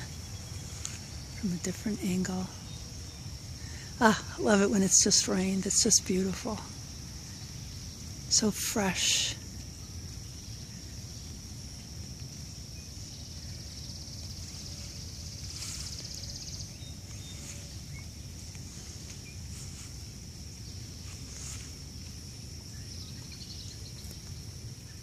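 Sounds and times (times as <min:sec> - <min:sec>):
insect trill: 0:00.0 - 0:25.0
faint bird chirps: 0:12.8 - 0:19.9, 0:22.7 - 0:25.0.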